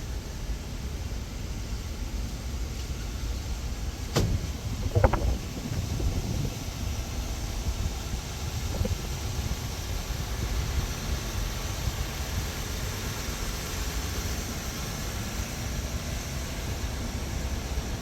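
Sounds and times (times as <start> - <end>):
wind buffeting microphone: 4.0 - 12.5.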